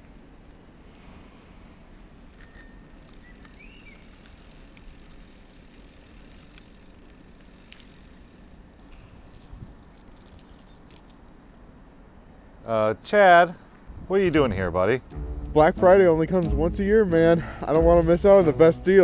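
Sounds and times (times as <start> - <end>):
low background hum: 0.0 - 19.0
metallic bell-like dings: 2.4 - 3.0
light clicking and clinking: 7.6 - 11.4.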